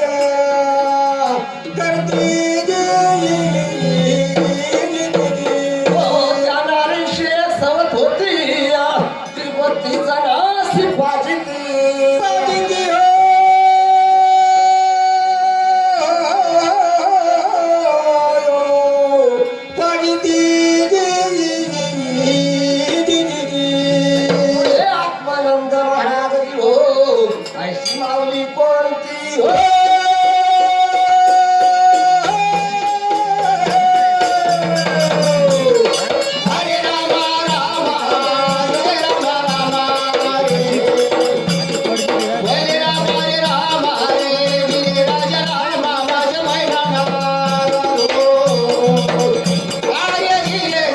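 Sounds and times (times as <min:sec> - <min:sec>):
devotional singing: 0:00.0 - 0:50.9
instrumental accompaniment: 0:00.0 - 0:50.9
jingling percussion: 0:00.0 - 0:50.9
hand drum beat: 0:32.1 - 0:50.9.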